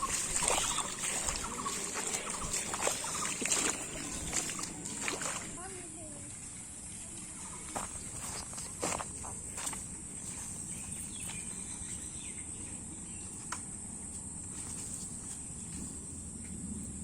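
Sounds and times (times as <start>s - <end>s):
insects trilling: 0.0s - 5.6s.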